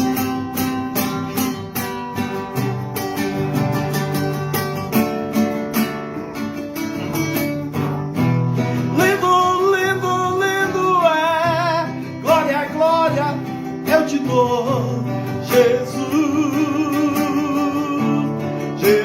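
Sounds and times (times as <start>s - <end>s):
acoustic guitar strumming chords: 0.0s - 19.0s
person singing with vibrato: 8.7s - 19.0s.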